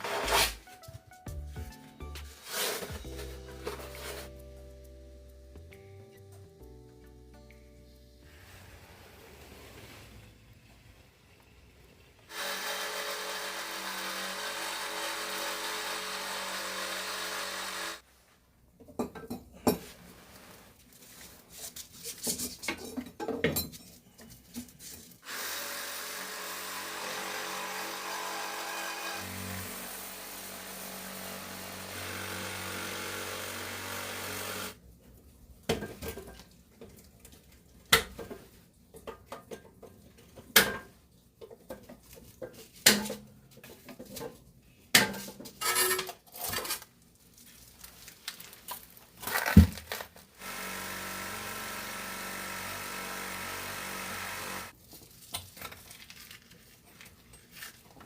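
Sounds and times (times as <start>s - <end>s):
handheld power tool running: 12.3s - 18.0s, 25.2s - 34.8s, 50.4s - 54.7s.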